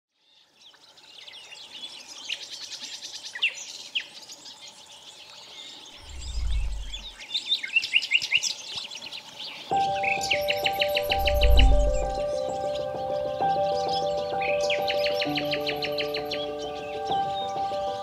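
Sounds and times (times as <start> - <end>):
songbirds chirping and singing: 0.2 - 18.0
brief low rumble: 6.0 - 7.2, 11.1 - 12.2.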